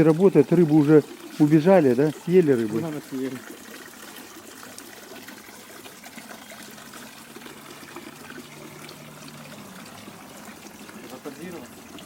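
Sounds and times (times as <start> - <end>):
fountain water trickling: 0.0 - 12.0.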